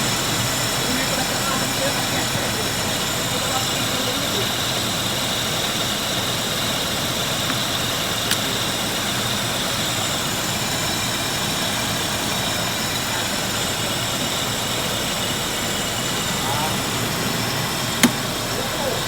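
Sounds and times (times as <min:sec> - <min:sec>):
car engine idling: 0:00.0 - 0:19.0
sharp click: 0:18.0 - 0:18.3.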